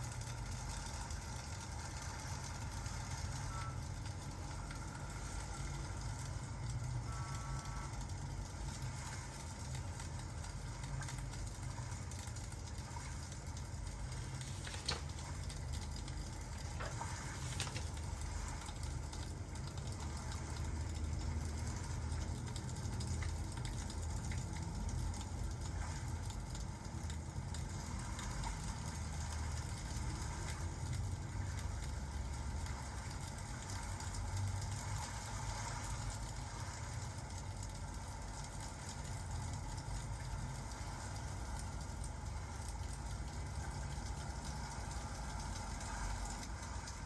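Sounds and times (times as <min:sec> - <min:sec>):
fire crackles: 0:00.0 - 0:47.0
rain hiss: 0:00.0 - 0:47.0
fireplace rumbling: 0:08.0 - 0:25.6.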